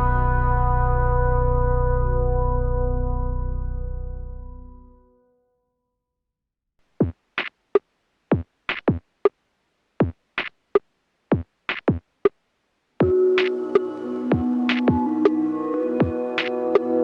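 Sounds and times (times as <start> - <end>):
drum machine beat: 6.9 - 9.3, 10.0 - 12.1, 13.0 - 17.0.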